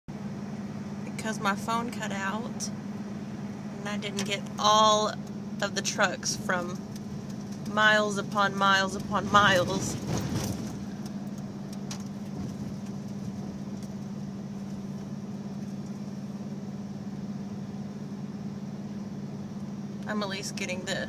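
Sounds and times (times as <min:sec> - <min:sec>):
vehicle engine humming: 0:00.1 - 0:21.0.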